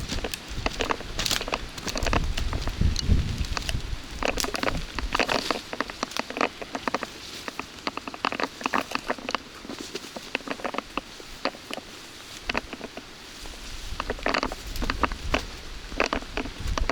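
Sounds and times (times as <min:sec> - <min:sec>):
raindrops pattering: 0:00.0 - 0:11.8.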